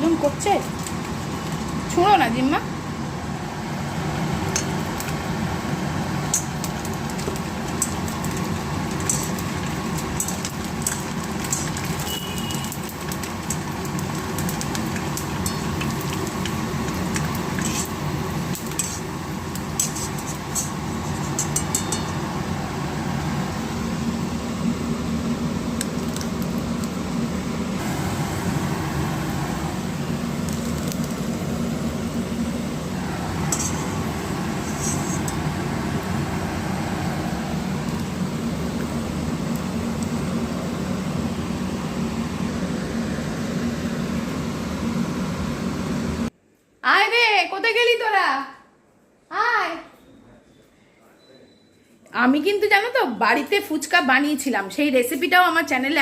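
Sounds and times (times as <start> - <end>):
kitchen hum: 0.0 - 46.3
utensils and dishes clinking: 4.4 - 5.1, 6.2 - 22.3, 33.3 - 35.6.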